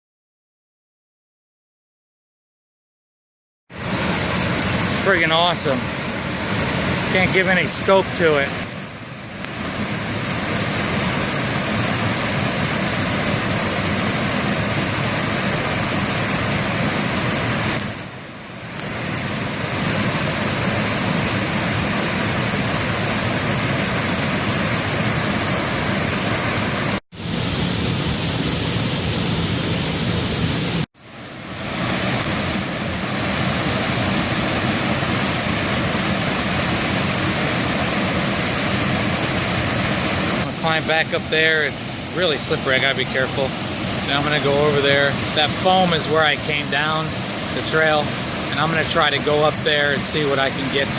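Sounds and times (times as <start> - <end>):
waterfall rushing: 3.8 - 50.9.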